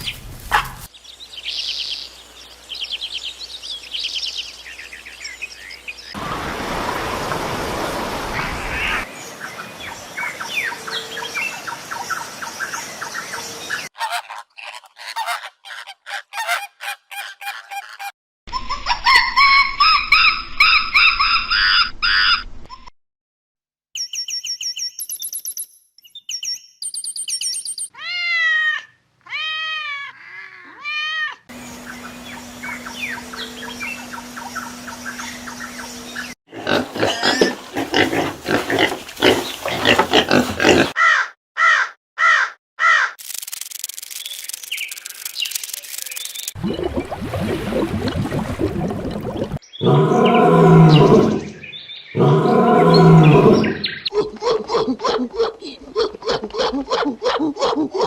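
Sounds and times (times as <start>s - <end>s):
outdoor ambience: 0.0s - 13.8s, 28.0s - 41.0s
bird chirps: 24.0s - 27.9s
wild animal calls: 36.5s - 41.2s, 49.8s - 51.6s, 52.2s - 58.0s.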